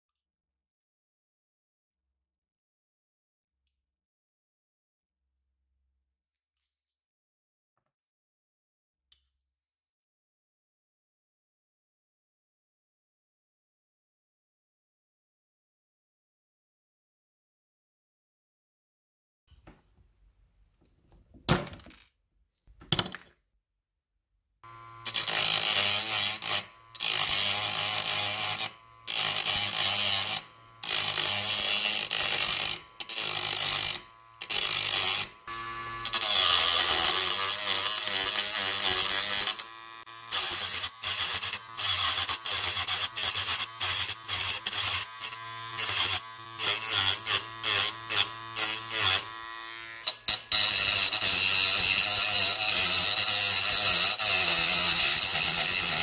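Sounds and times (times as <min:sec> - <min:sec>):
power tool running in bursts: 0:24.6 - 0:53.4.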